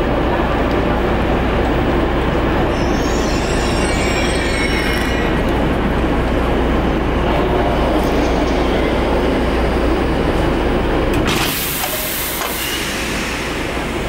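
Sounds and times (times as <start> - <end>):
train wheels squealing: 2.6 - 5.5, 12.1 - 13.7.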